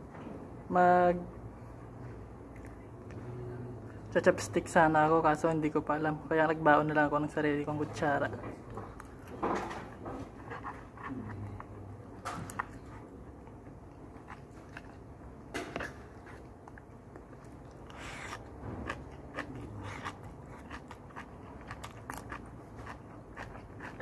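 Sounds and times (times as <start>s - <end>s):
person chewing food: 8.7s - 24.0s.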